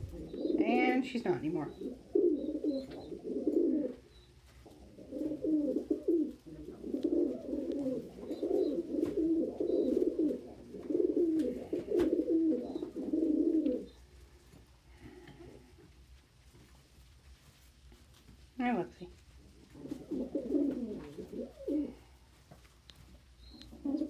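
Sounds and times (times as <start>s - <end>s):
pigeons cooing: 0.0s - 14.2s, 19.4s - 22.4s, 23.1s - 24.0s.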